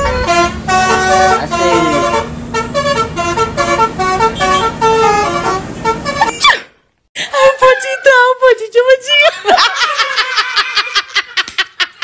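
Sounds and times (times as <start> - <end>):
musical bus horn playing a tune: 0.0 - 6.4.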